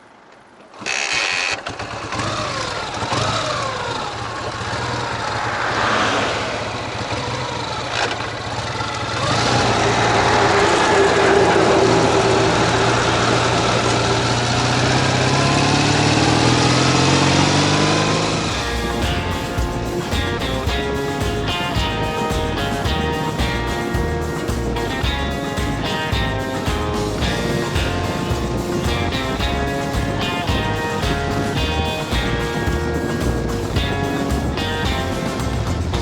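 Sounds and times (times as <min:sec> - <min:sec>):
motorcycle engine starting and running: 0:00.7 - 0:36.0.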